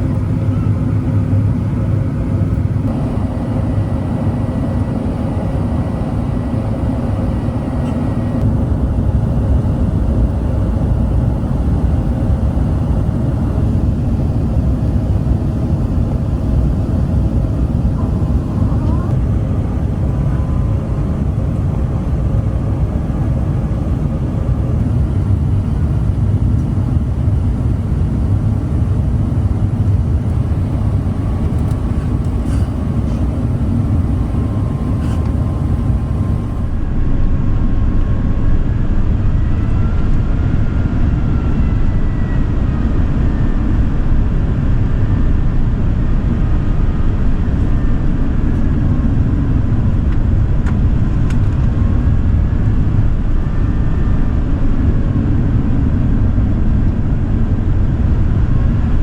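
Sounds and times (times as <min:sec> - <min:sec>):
faint whining tones: 0:00.0 - 0:36.9
airliner cabin engine roar: 0:00.0 - 0:59.0.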